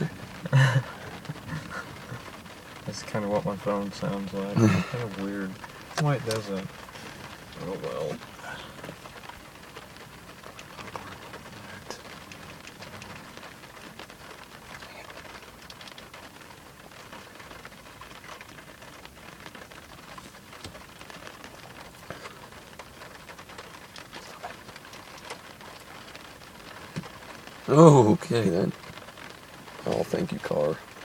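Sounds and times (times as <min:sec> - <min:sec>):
raindrops tapping on car: 0:00.0 - 0:31.0
steady rain hiss: 0:00.0 - 0:31.0.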